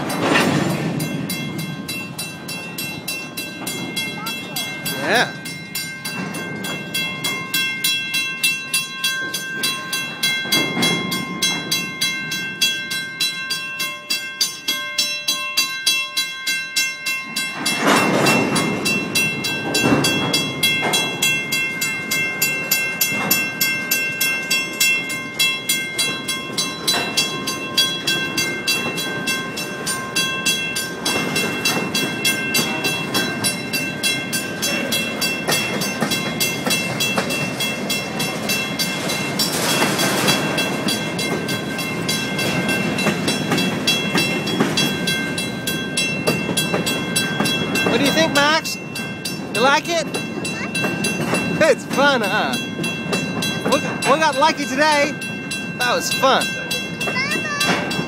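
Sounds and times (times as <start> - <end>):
train wheels clicking over rails: 0.0 - 13.4, 17.2 - 58.0.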